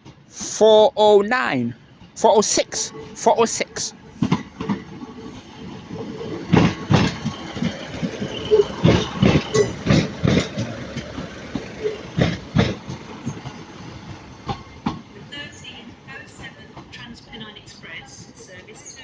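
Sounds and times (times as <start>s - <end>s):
train running rumble: 1.8s - 19.0s
train wheels knocking on rail joints: 4.2s - 15.4s.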